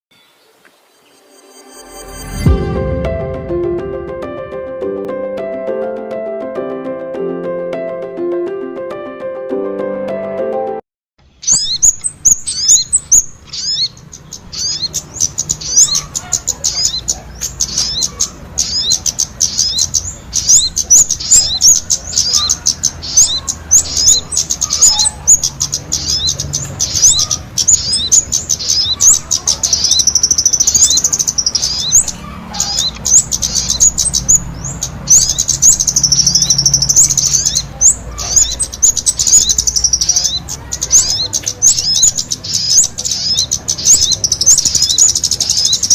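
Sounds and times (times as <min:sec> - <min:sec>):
songbirds singing: 0:00.1 - 0:01.6, 0:11.2 - 0:45.9.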